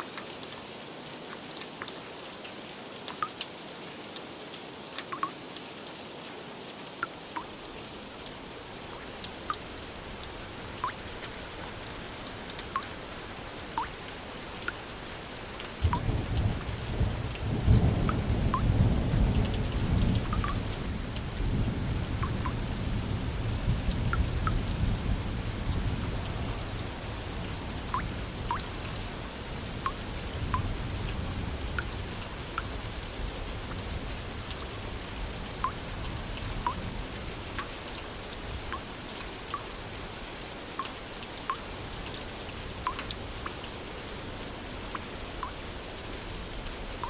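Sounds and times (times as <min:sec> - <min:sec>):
steady rain: 0:00.0 - 0:47.0
raindrops plinking: 0:03.1 - 0:03.5, 0:05.0 - 0:05.4, 0:07.0 - 0:20.8, 0:22.1 - 0:22.6, 0:27.8 - 0:29.0, 0:29.8 - 0:32.8, 0:35.5 - 0:35.9, 0:36.6 - 0:38.1, 0:38.7 - 0:39.7, 0:40.7 - 0:43.8, 0:44.8 - 0:45.7
low rumble of thunder: 0:15.8 - 0:28.5.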